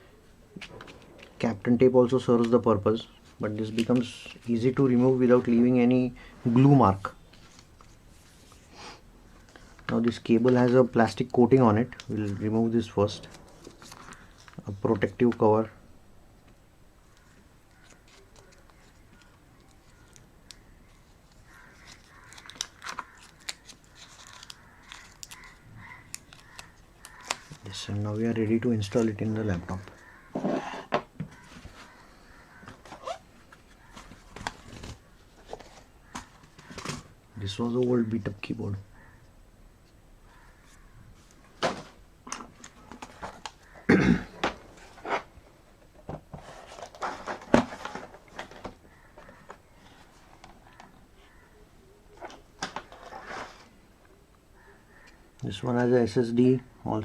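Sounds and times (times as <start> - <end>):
rustling: 17.0 - 28.2, 46.3 - 53.8
plastic film peeling and crinkling: 17.1 - 28.2.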